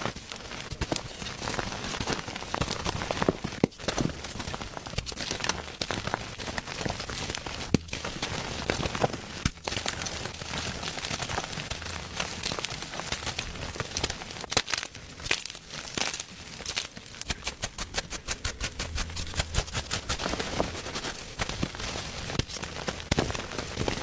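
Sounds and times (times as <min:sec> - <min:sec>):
chalk crunching: 0:06.3 - 0:24.0.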